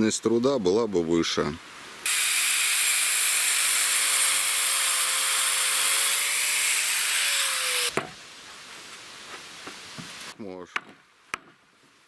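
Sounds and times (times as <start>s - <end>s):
angle grinder cutting concrete: 2.1s - 7.9s.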